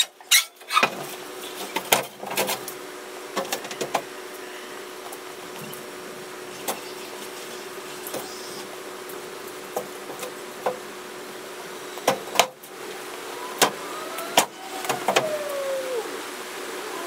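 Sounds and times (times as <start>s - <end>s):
steady hum: 2.5s - 17.0s.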